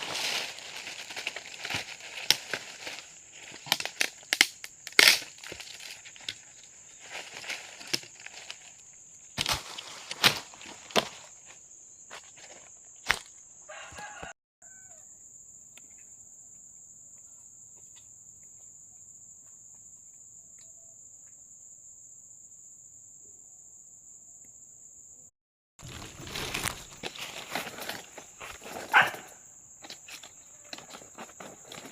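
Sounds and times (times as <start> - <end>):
rustling and shuffling: 0.0 - 4.1, 5.4 - 13.3, 25.8 - 31.9
insect drone: 0.0 - 31.9.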